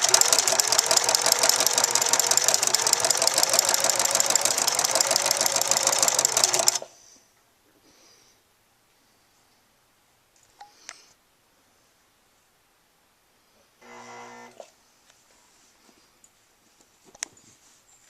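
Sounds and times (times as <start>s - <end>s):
sewing machine running fast: 0.0s - 6.8s.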